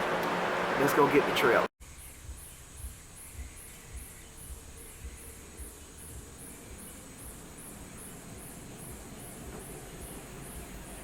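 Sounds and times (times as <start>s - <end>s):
insects chirping: 1.8s - 11.0s
soft low thuds: 2.1s - 7.5s.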